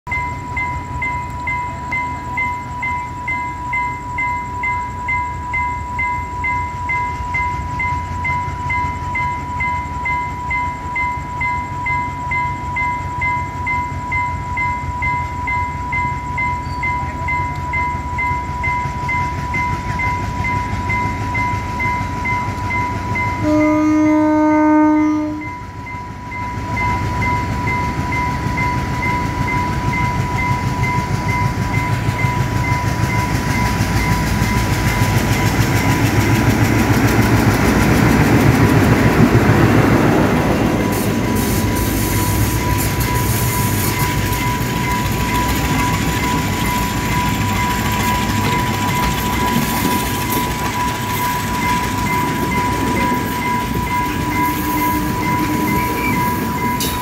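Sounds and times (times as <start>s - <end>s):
diesel locomotive rumble: 0.1s - 57.0s
level crossing alarm beeping: 0.1s - 57.0s
locomotive horn: 23.4s - 25.6s, 54.1s - 56.4s.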